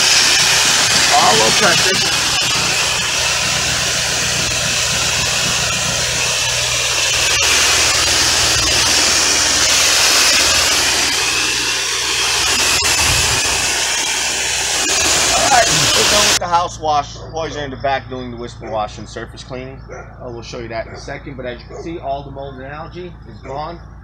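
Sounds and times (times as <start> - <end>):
water spray hissing: 0.0 - 16.4
pressure washer engine hum: 0.0 - 24.0.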